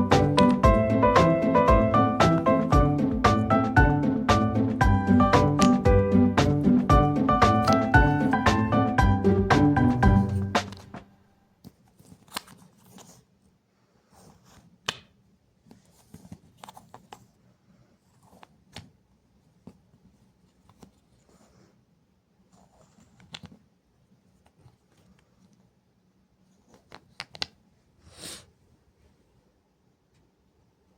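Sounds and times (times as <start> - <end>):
soft rustling: 11.6 - 14.8, 15.6 - 25.8, 26.4 - 29.5.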